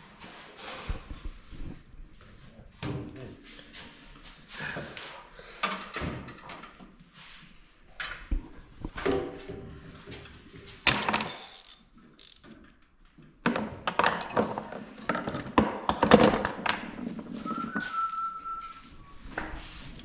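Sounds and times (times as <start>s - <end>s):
sharp metal clatter: 10.9s - 12.4s
hand tools and metal parts clanking: 10.9s - 12.6s, 13.8s - 17.4s
short high whistle tone: 17.4s - 19.1s.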